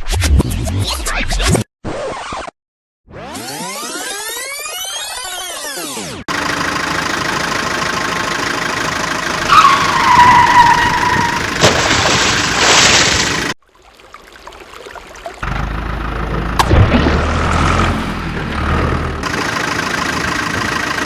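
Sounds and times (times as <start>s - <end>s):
vehicle engine running: 6.3s - 13.6s, 15.4s - 21.0s
short squeal: 9.5s - 11.5s.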